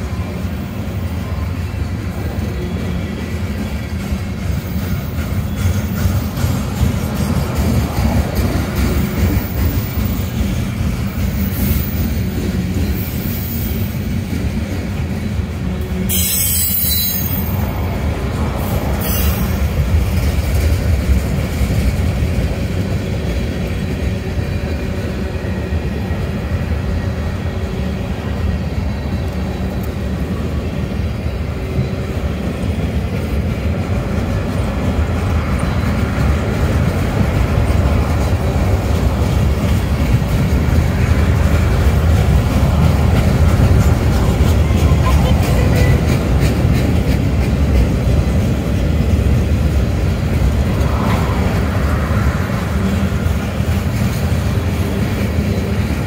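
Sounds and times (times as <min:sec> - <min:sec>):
freight train wheels rolling: 0:00.0 - 0:56.0.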